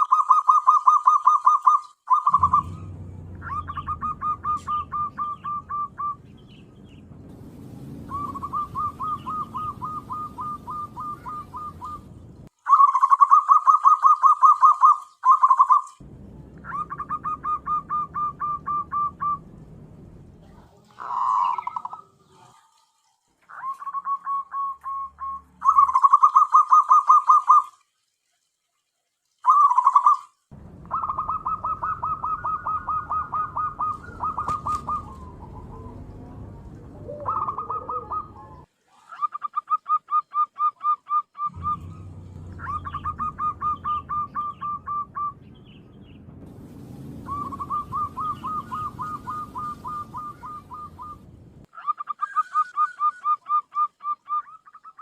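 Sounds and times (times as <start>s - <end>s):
dove cooing: 0.0s - 6.6s, 8.1s - 15.8s, 16.6s - 19.4s, 20.8s - 22.7s, 30.9s - 45.4s, 47.2s - 51.2s.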